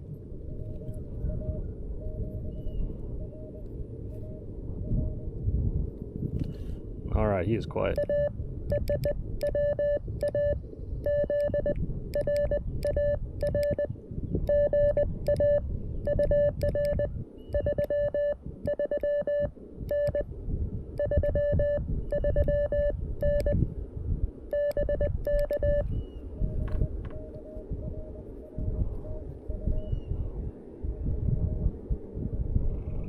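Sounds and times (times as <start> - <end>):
morse code tone: 8.0 - 13.9, 14.5 - 20.2, 21.0 - 23.6, 24.5 - 29.8.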